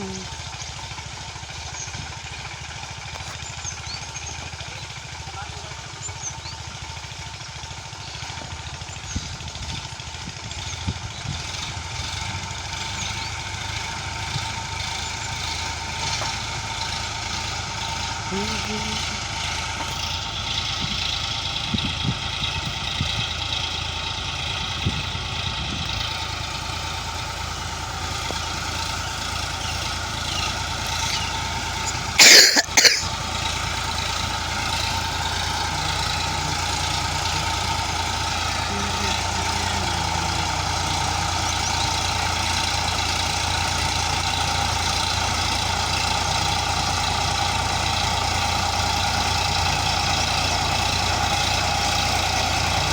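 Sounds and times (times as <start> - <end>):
tractor diesel engine running: 0.0 - 52.9
loud engine burst: 27.7 - 43.0.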